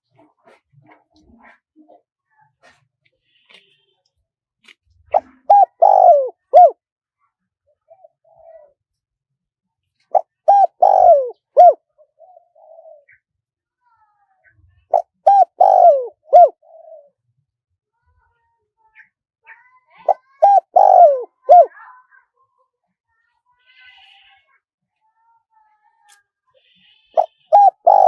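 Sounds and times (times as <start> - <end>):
dove cooing: 5.1 - 6.8, 7.8 - 8.8, 10.1 - 13.2, 14.9 - 17.2, 20.0 - 21.8, 27.1 - 28.0.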